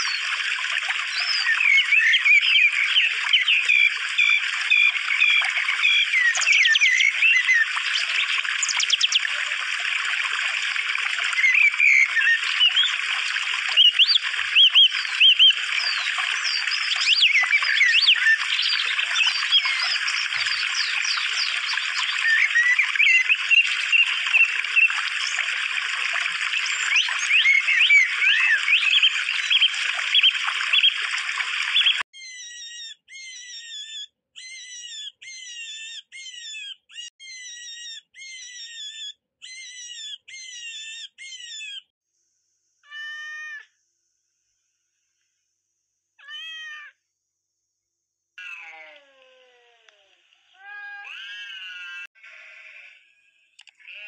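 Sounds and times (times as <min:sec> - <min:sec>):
birds chirping and whistling: 0:00.0 - 0:09.4, 0:11.3 - 0:25.5, 0:26.4 - 0:41.9.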